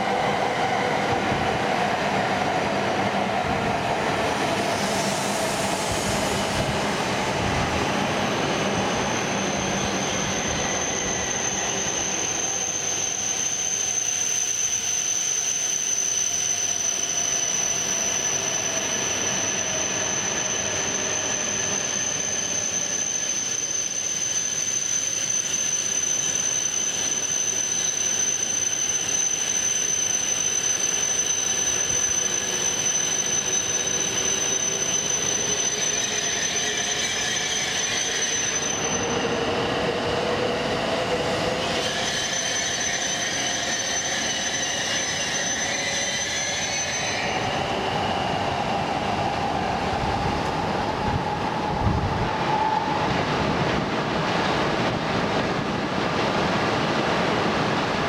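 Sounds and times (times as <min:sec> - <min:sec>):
high thin train whine: 0:00.0 - 0:58.0
train rolling rumble: 0:47.3 - 0:58.0.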